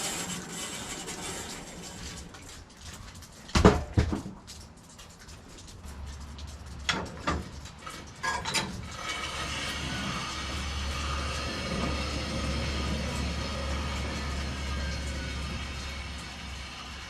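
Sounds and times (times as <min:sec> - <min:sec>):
sharp knocks and clanks: 0:03.5 - 0:04.6.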